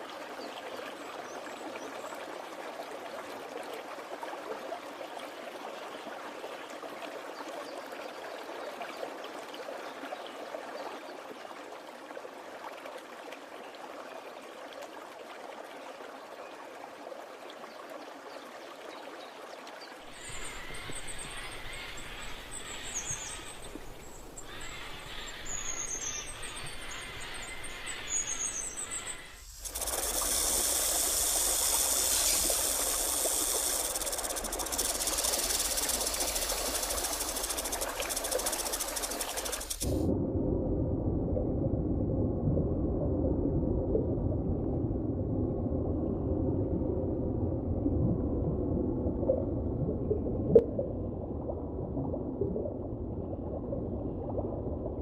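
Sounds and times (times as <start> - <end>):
running water rushing: 9.0 - 40.1
high quick chirping calls: 20.2 - 39.8
loud hiss: 27.2 - 40.1
low rumble: 39.8 - 55.0.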